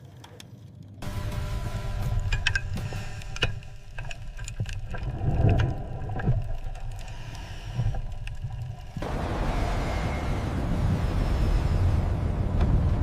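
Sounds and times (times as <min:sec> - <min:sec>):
low rumbling drone: 0:01.0 - 0:13.0
sharp metallic clicks and ticks: 0:01.2 - 0:09.0.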